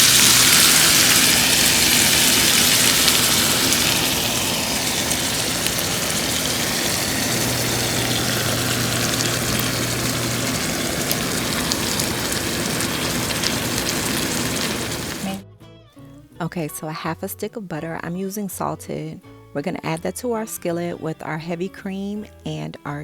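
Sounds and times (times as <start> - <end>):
liquid sizzling in a skillet: 0.0 - 15.4
low steady hum: 0.0 - 15.4.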